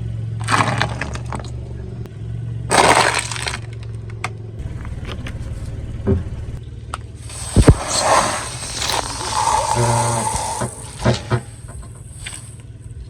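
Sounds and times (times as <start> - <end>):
car engine hum: 0.0 - 13.0
tyre crushing brittle object: 0.4 - 1.5, 2.7 - 3.8, 7.3 - 12.6.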